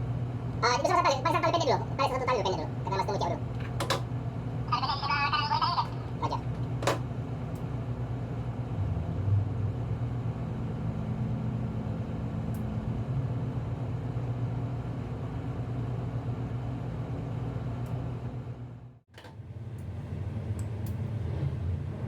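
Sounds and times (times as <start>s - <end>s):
diesel engines droning: 0.0s - 17.8s.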